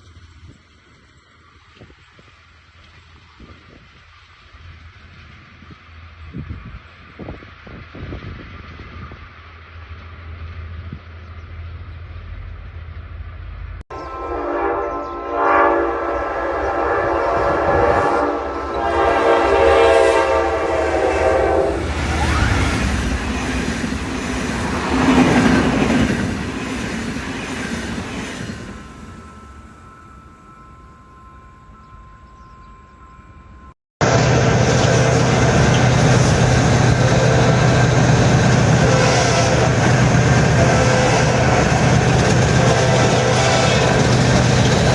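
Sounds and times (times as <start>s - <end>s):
train low rumble: 0.0s - 44.9s
train running noise: 0.0s - 44.9s
locomotive horn blast: 13.9s - 22.7s, 34.0s - 44.9s.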